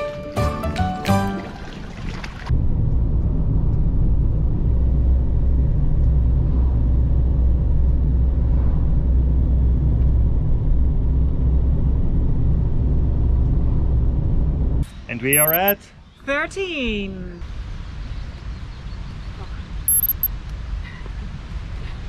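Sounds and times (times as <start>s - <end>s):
road noise: 1.4s - 16.3s, 17.3s - 22.0s
van engine rumble: 2.5s - 14.8s.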